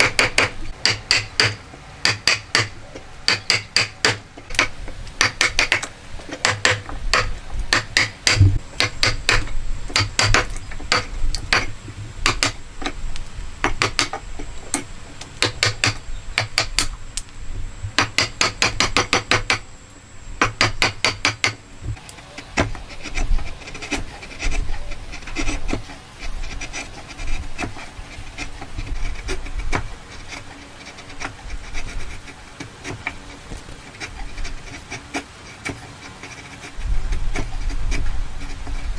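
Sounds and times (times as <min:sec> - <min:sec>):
hammer strikes on wood: 0:00.0 - 0:12.6, 0:13.6 - 0:14.2, 0:15.4 - 0:16.9, 0:18.0 - 0:19.6, 0:20.4 - 0:21.6.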